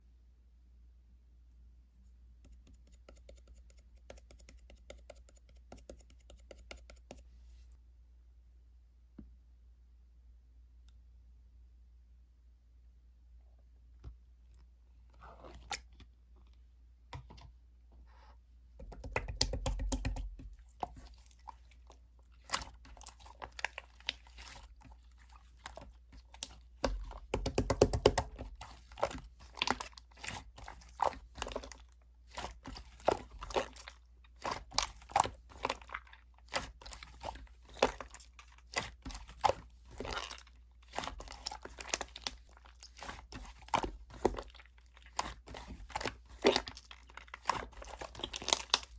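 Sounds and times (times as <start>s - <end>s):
wet clicks of slime kneaded: 18.8s - 21.0s.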